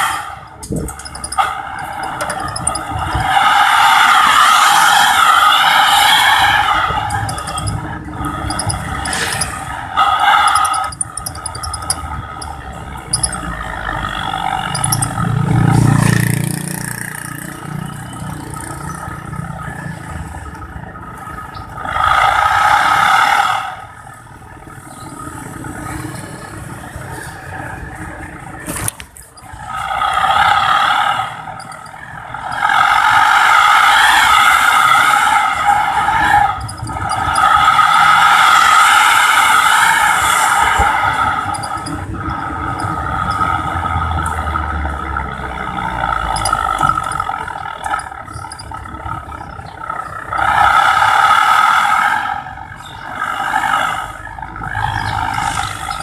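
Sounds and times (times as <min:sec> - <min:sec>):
whistling exhaust squeal: 0:00.0 - 0:16.1, 0:29.4 - 0:44.2, 0:45.8 - 0:56.0
truck engine revving: 0:00.0 - 0:23.8, 0:24.4 - 0:56.0.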